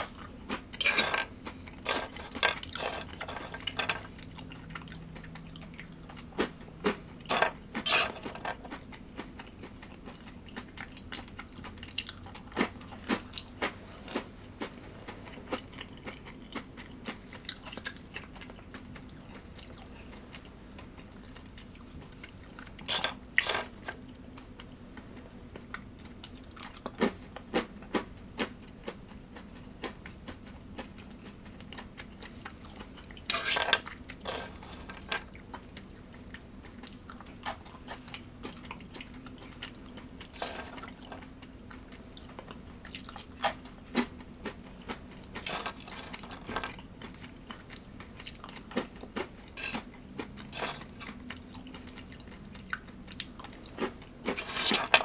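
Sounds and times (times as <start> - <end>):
person chewing: 0.0 - 54.9
faint steady hum: 0.0 - 55.0
cutlery clinking on plate: 0.8 - 1.3, 1.9 - 4.1, 7.3 - 8.6, 33.3 - 35.2, 49.6 - 49.9.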